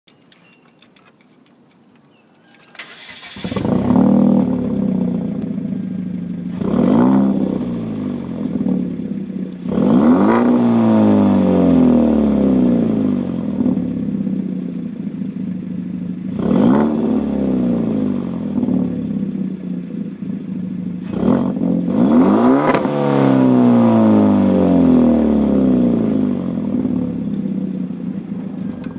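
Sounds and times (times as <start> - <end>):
car engine starting and revving: 2.8 - 28.9.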